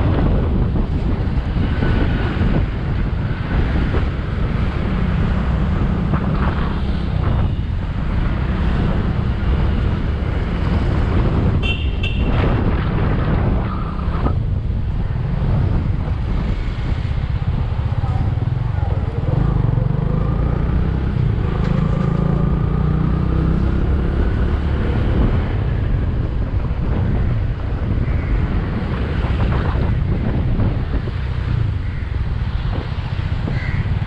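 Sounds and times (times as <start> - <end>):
wind buffeting microphone: 0.0 - 34.0
vehicle horn beep: 11.6 - 12.4.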